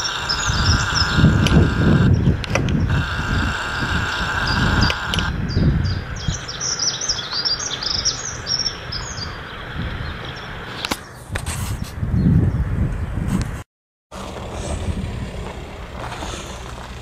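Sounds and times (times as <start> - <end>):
songbird twittering: 0.0 - 11.3
low rumble: 12.0 - 17.0.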